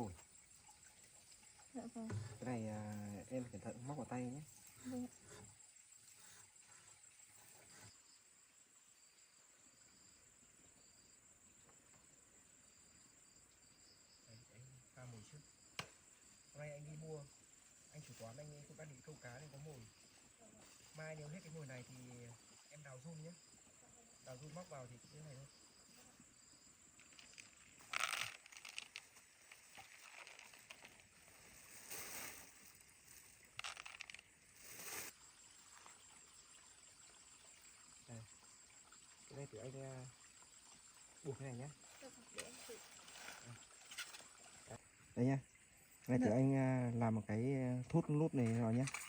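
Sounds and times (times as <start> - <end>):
insects chirping in high trills: 0.0 - 49.0
hands rustling fishing bait: 27.0 - 35.0.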